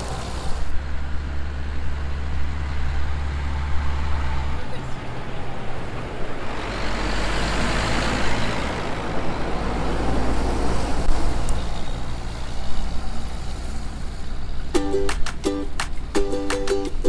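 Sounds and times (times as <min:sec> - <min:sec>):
tractor engine running: 0:00.0 - 0:00.8, 0:11.0 - 0:17.0
broad rush of noise: 0:00.0 - 0:01.1, 0:14.5 - 0:17.0.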